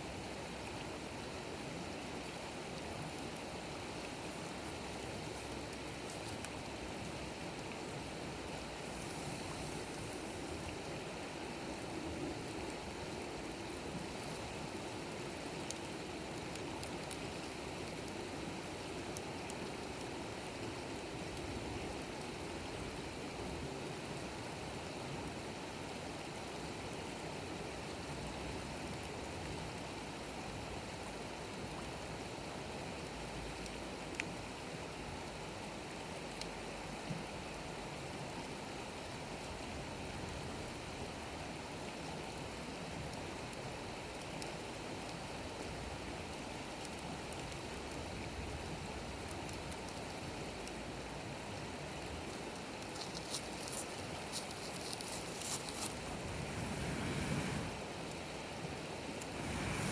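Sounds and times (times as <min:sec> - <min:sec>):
campfire hissing: 0:03.5 - 0:07.3, 0:07.9 - 0:12.5, 0:52.5 - 0:59.9
fire crackling pops: 0:59.2 - 0:59.9.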